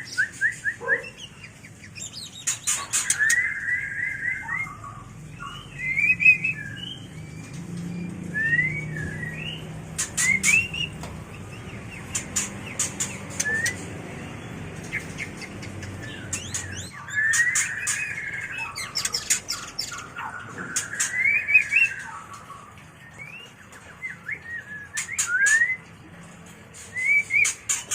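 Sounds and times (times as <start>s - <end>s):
bird whistling song: 0.0s - 13.9s, 14.9s - 22.3s, 23.0s - 25.9s, 26.9s - 27.9s
sharp bird clicking notes: 9.9s - 14.0s.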